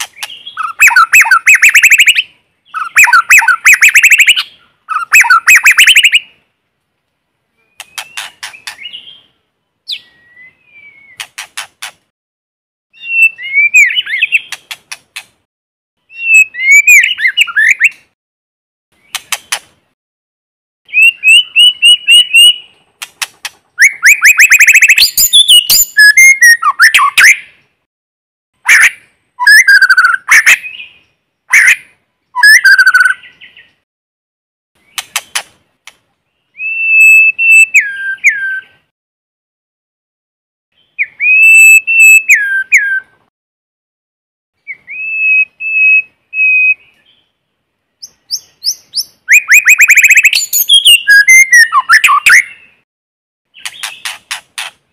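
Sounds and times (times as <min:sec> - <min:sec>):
bird singing whistled phrases: 0:00.2 - 0:06.3, 0:09.9 - 0:11.2, 0:13.0 - 0:14.6, 0:16.1 - 0:18.0, 0:20.9 - 0:22.7, 0:23.8 - 0:27.5, 0:28.7 - 0:31.8, 0:32.4 - 0:33.7, 0:36.5 - 0:38.8, 0:40.8 - 0:43.1, 0:44.6 - 0:47.2, 0:48.0 - 0:52.8.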